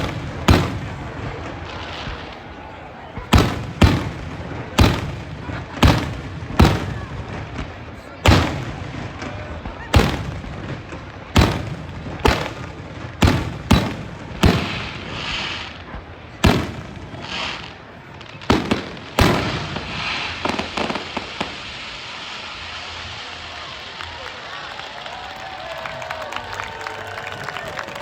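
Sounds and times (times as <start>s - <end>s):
fireworks booming: 0.0s - 24.2s
fireworks crackling: 0.0s - 28.0s.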